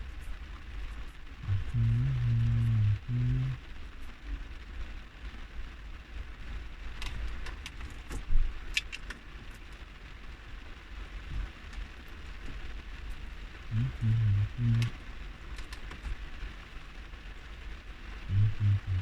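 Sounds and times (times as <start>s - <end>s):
rain pattering on car body: 3.6s - 13.7s, 14.8s - 18.3s.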